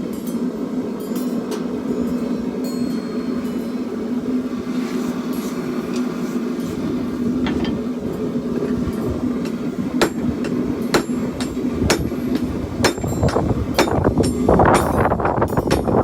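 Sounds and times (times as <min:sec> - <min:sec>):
hammer ringing on steel: 0:09.5 - 0:16.0.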